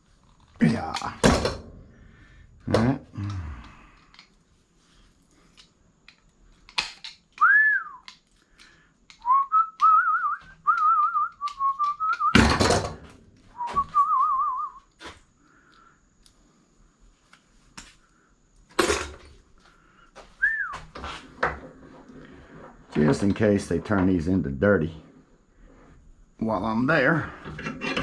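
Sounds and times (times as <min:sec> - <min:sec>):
man whistling a tune: 0:07.4 - 0:08.1, 0:09.2 - 0:12.4, 0:13.5 - 0:14.9, 0:20.3 - 0:20.9
metal clatter: 0:27.4 - 0:28.0.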